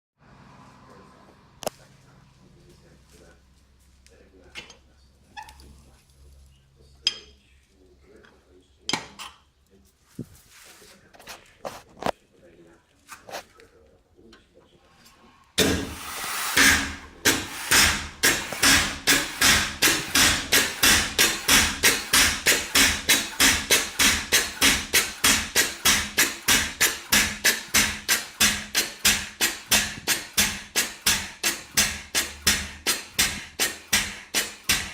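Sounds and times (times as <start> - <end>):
rush of steam: 15.6 - 24.0
steam engine exhaust chuffs: 15.6 - 34.9.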